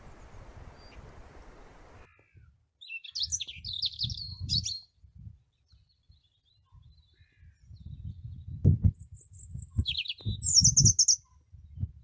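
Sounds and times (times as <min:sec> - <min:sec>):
songbirds singing: 0:00.0 - 0:12.0
high chirping bird notes: 0:09.1 - 0:11.3.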